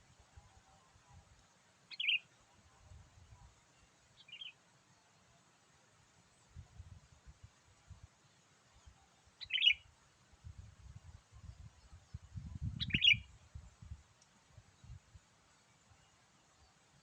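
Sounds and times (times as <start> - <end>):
bird chirpy calls: 1.9 - 2.3, 9.4 - 9.8, 12.8 - 13.3.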